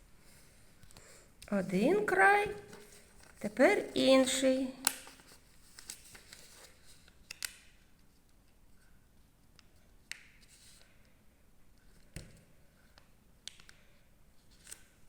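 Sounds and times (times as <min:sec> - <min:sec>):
paper crinkling and clicking: 0:04.8 - 0:07.6.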